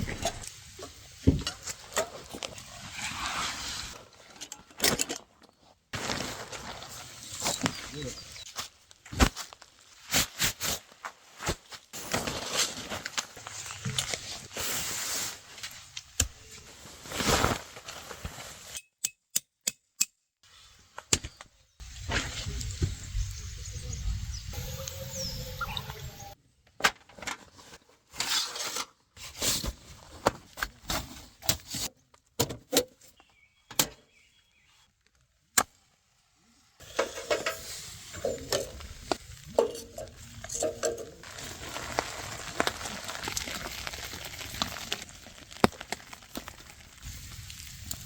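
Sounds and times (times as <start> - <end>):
metal pots clinking: 36.8 - 41.5.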